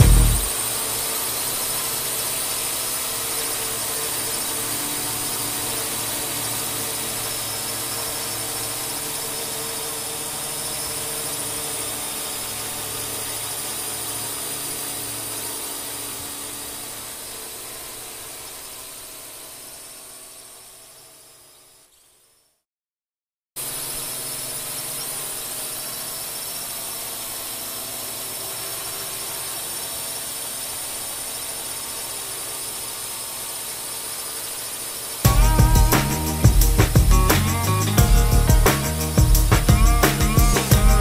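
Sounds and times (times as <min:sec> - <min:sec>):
drone propellers whining: 0:00.0 - 0:21.5, 0:23.6 - 0:41.0.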